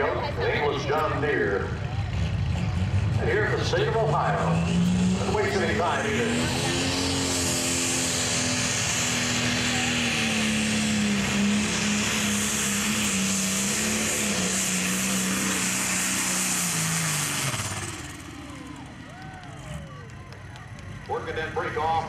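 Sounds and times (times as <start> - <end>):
diesel engine under load: 0.0 - 22.0.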